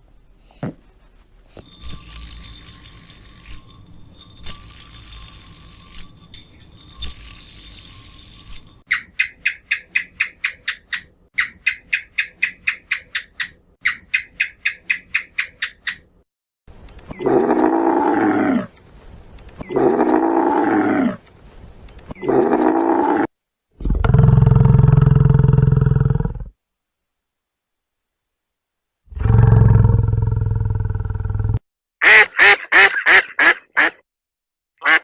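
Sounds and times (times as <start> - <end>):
rapid high bird chirping: 8.9 - 16.2.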